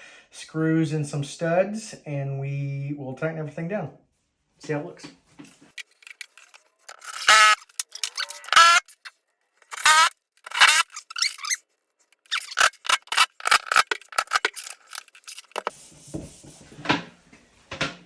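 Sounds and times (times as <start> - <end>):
screws squeaking: 5.8 - 11.6, 12.2 - 15.8
scraping noise: 12.2 - 16.8.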